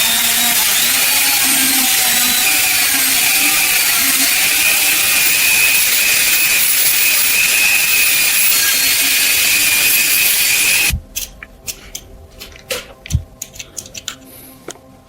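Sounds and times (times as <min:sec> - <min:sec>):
power tool whining: 0:00.0 - 0:11.0
small parts clicking: 0:10.6 - 0:14.3.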